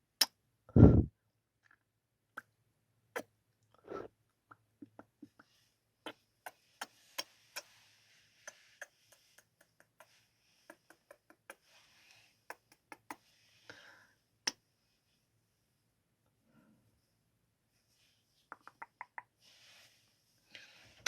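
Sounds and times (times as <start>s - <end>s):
faint breathy hiss: 6.4s - 15.2s, 19.4s - 21.0s
lip smacking kisses: 18.5s - 19.3s.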